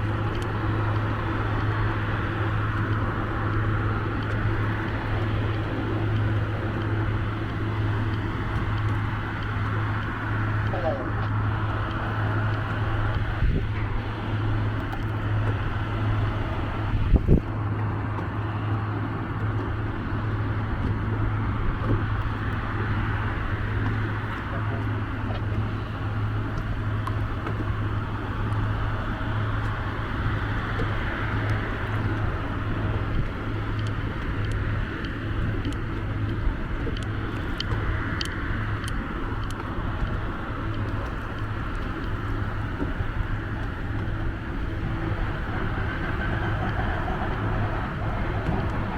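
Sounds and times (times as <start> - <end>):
boat engine humming: 0.0 - 48.9
wind noise: 0.0 - 48.9.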